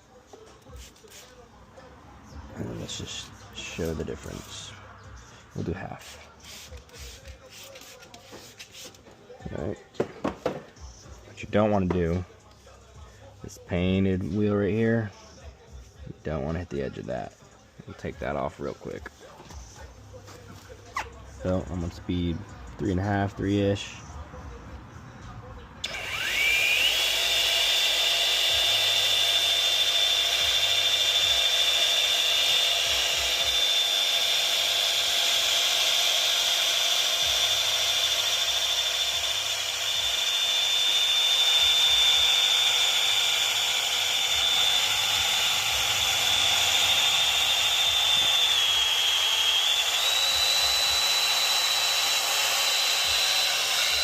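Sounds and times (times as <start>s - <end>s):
rotary polisher whining: 25.8s - 54.0s.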